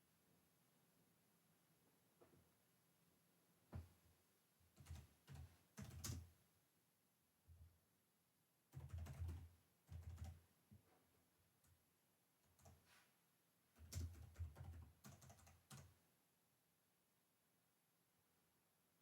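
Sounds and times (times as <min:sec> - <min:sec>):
typing on computer keyboard: 0:04.8 - 0:06.3, 0:08.7 - 0:10.4, 0:12.4 - 0:12.8, 0:13.8 - 0:16.0.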